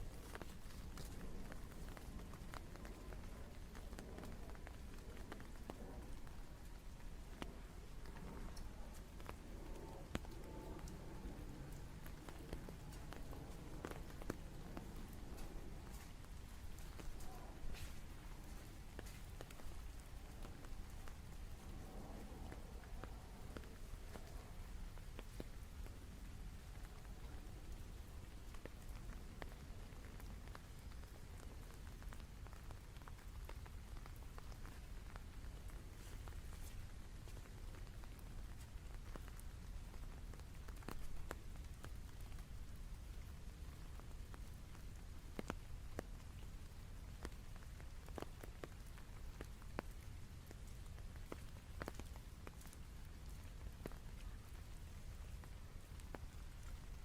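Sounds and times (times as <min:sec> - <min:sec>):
steady rainfall: 0:00.0 - 0:57.0.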